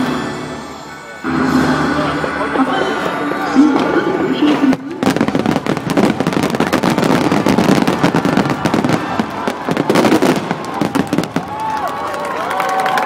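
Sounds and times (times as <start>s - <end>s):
fireworks bangs and crackles: 3.6s - 12.5s.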